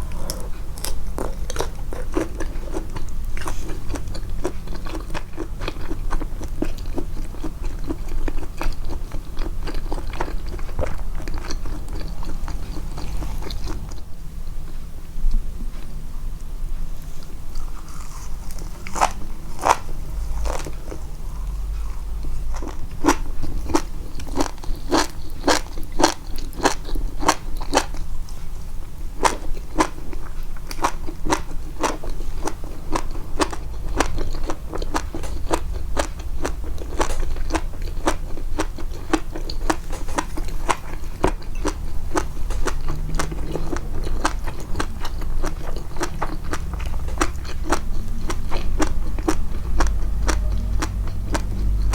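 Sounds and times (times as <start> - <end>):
person chewing crunchy food: 0.0 - 14.2, 17.0 - 28.5, 29.2 - 51.9.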